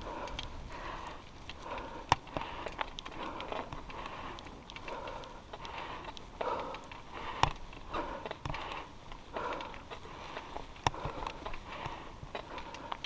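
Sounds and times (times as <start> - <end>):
bicycle clicks and knocks: 0.0 - 13.0
cyclist breathing hard: 0.0 - 13.0.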